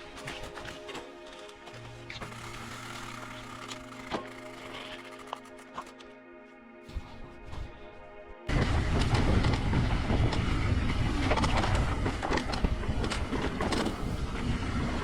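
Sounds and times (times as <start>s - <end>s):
faint music: 0.0s - 15.0s
wind on microphone: 8.5s - 15.0s.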